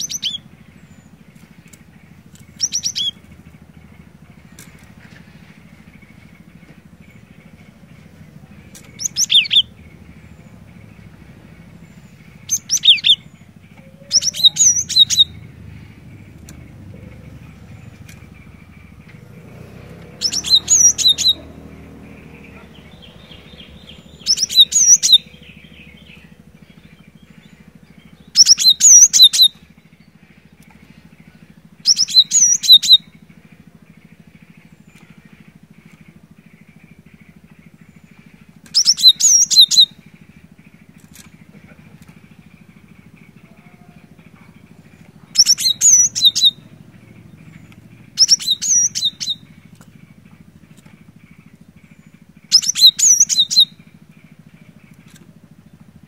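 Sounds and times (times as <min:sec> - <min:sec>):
bird singing high repeated notes: 0:00.0 - 0:04.9, 0:05.6 - 0:30.9, 0:31.8 - 0:56.0.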